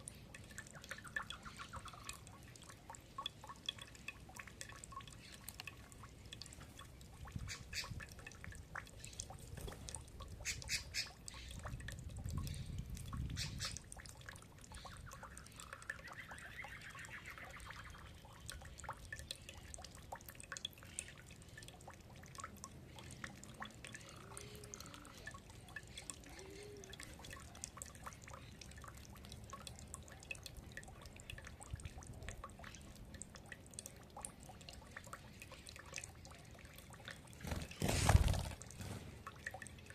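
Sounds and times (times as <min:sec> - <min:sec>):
soft bird calls: 0:10.4 - 0:11.7, 0:12.4 - 0:13.8, 0:14.6 - 0:19.8, 0:23.0 - 0:28.7.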